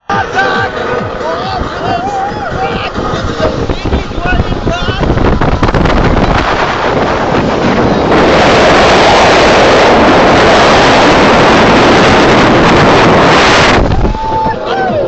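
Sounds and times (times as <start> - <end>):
wind buffeting the microphone: 0.8 - 15.0.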